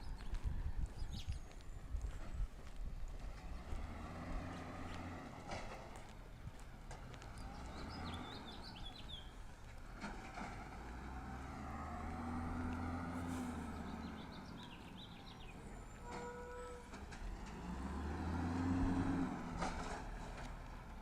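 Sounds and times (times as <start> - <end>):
garbage truck engine revving: 17.3 - 20.4.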